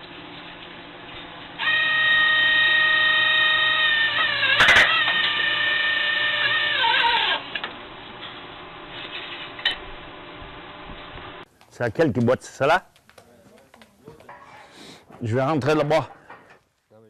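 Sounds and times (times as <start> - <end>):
power tool motor whining: 1.6 - 7.6.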